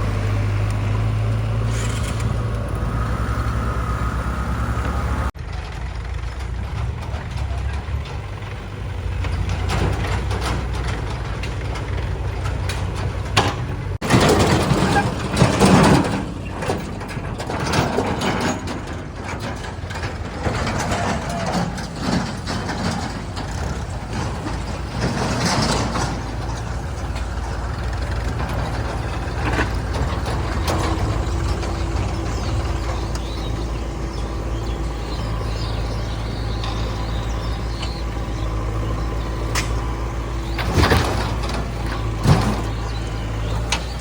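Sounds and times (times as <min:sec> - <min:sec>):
heavy diesel engines running: 0:00.0 - 0:44.0.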